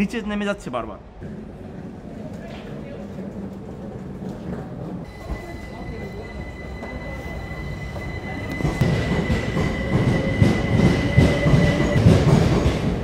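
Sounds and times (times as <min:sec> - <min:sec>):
wheels rumbling and clattering: 0:01.1 - 0:05.4, 0:07.9 - 0:13.0
electric train passing: 0:01.1 - 0:13.0.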